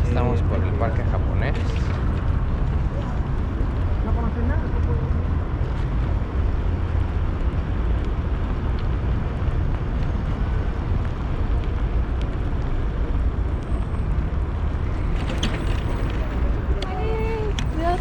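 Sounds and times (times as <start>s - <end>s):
wind buffeting microphone: 0.0s - 13.6s
road noise: 0.0s - 18.0s.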